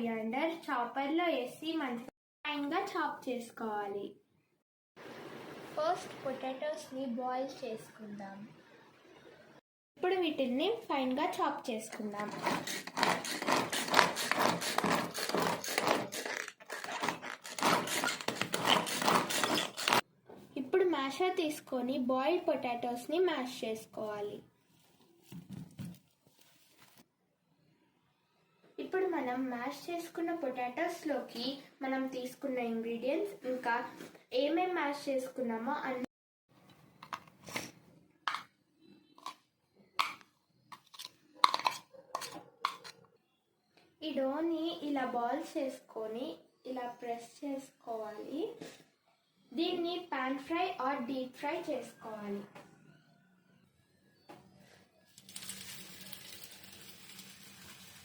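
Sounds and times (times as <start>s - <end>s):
spoon scraping and knocking bowl: 11.9s - 20.0s, 37.0s - 38.5s, 40.0s - 40.2s, 40.8s - 43.0s
knife chopping on cutting board: 12.2s - 20.0s.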